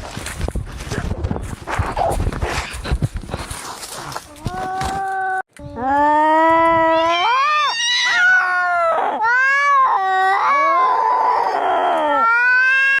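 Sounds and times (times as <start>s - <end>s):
cats yowling in a fight: 6.8s - 13.0s.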